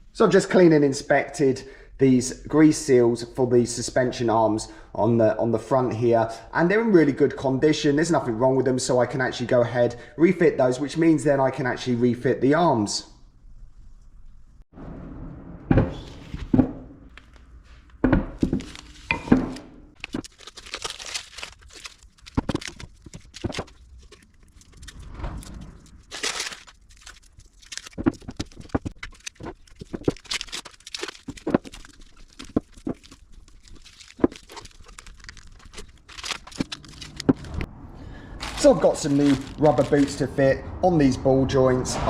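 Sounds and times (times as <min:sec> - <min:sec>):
rustling: 0:19.9 - 0:40.2.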